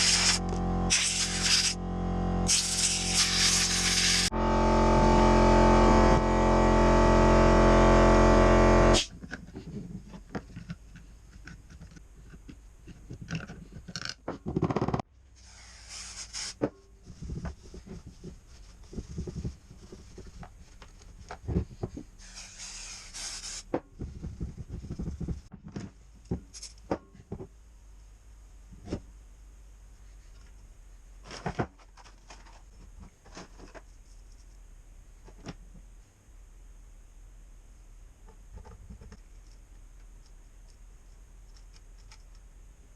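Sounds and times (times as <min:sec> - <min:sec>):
hissing bursts: 0:00.0 - 0:01.8, 0:02.5 - 0:04.3
loud steady pitched tone: 0:00.0 - 0:09.1.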